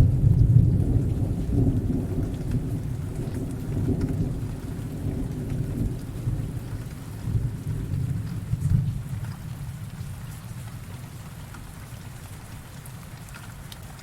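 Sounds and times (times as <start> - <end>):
thunder rumbling: 0.0 - 9.0
steady rain: 0.0 - 14.0.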